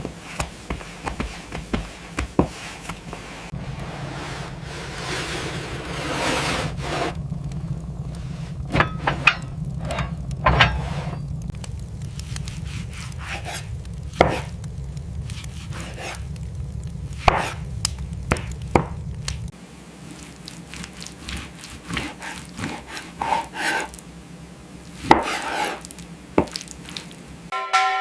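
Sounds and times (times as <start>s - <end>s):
sharp knocks and scrapes: 0.0s - 7.2s, 8.2s - 11.4s, 12.2s - 14.5s, 25.0s - 26.6s
low steady hum: 0.0s - 28.0s.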